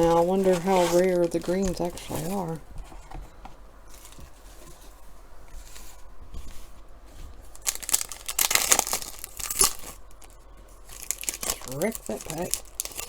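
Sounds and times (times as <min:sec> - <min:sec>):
foil wrapper tearing and crinkling: 0:00.0 - 0:02.6, 0:07.5 - 0:13.0.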